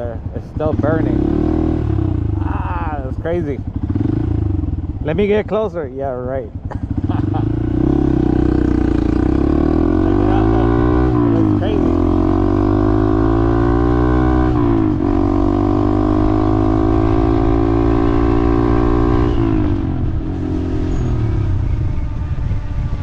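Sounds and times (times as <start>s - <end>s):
road and wind noise: 0.0s - 23.0s
vehicle engine accelerating: 6.6s - 23.0s.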